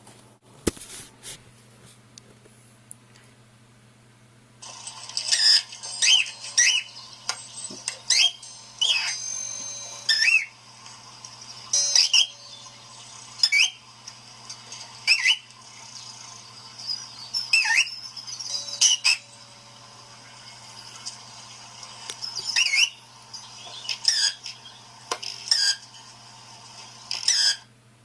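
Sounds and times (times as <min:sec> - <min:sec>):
cockatiel chirps and whistles: 0:05.3 - 0:07.0, 0:08.1 - 0:09.2, 0:10.1 - 0:10.5, 0:13.4 - 0:13.8, 0:15.1 - 0:15.5, 0:16.9 - 0:18.1, 0:22.4 - 0:23.0.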